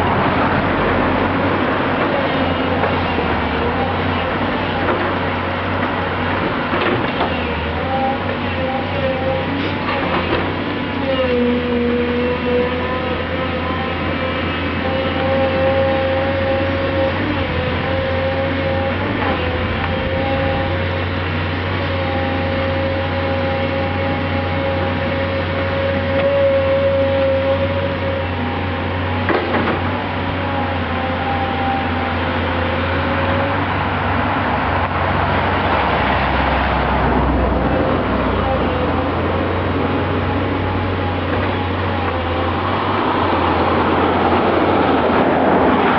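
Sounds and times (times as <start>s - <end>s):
heavy machinery diesel rumble: 0.0s - 45.9s
whining machine tone: 21.9s - 28.8s.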